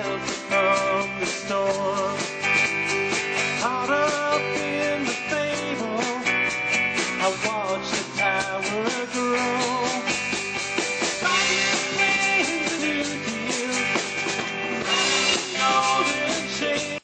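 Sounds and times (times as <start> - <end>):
bending lead guitar melody: 0.0 - 17.0
rock band playing: 0.0 - 17.0.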